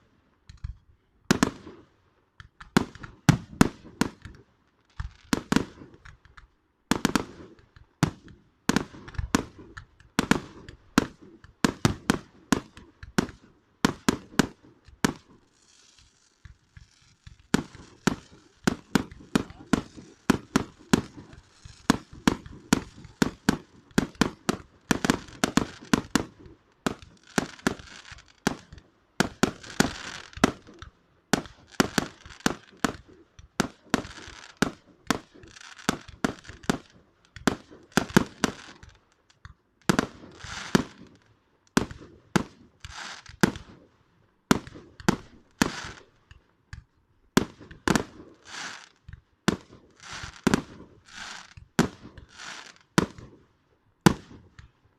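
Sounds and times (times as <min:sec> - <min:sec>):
fireworks crackling and hissing: 0:00.0 - 0:54.9
fireworks banging: 0:00.4 - 0:43.9, 0:44.5 - 0:54.8.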